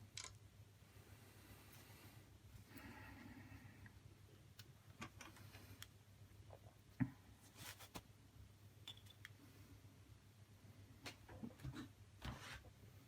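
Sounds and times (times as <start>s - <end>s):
low steady hum: 0.0s - 13.0s
soft rustle: 7.4s - 8.1s.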